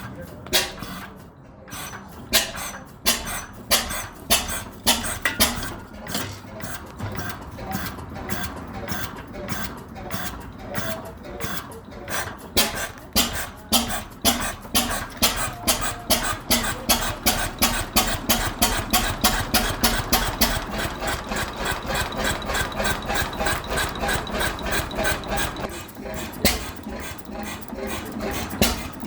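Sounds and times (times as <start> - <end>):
stationary engine beats: 0.0 - 29.0.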